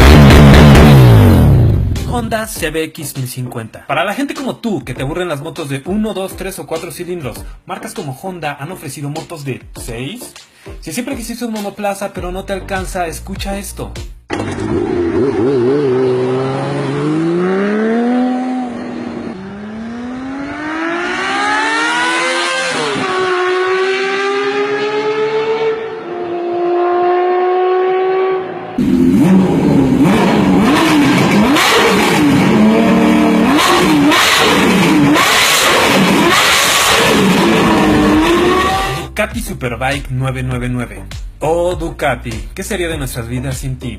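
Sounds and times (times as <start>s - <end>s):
motorcycle engine revving: 0.0s - 2.0s, 14.3s - 39.1s.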